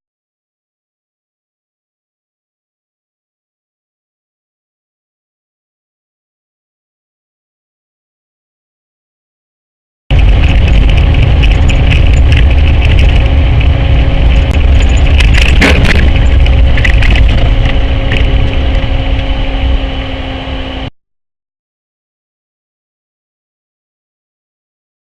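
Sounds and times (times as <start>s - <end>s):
road and engine rumble: 10.1s - 20.9s
sharp cracks and knocks: 14.4s - 18.8s.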